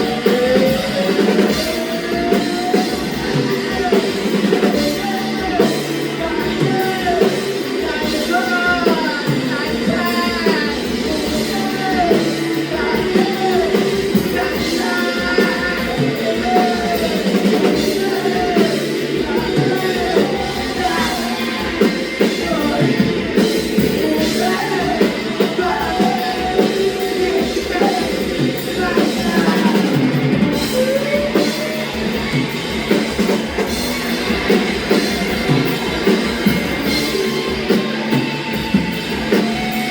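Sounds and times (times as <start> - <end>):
rock song with singing: 0.0 - 39.9.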